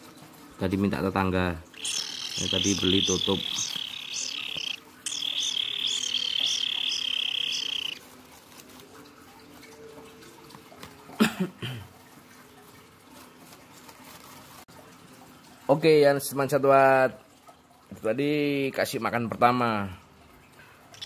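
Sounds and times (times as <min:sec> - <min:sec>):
bird buzzing begging trill: 0:01.7 - 0:08.0.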